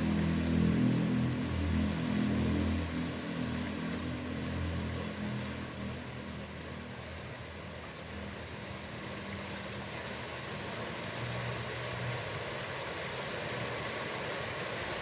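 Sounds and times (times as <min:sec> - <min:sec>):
heavy rain on a pond: 0:00.0 - 0:15.0.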